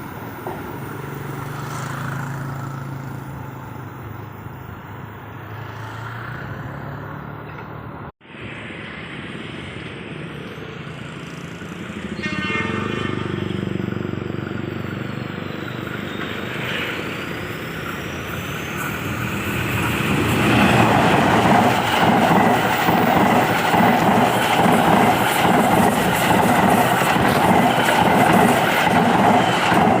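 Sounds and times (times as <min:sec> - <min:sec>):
diesel train passing: 0:00.0 - 0:30.0
train horn blast: 0:12.0 - 0:13.8.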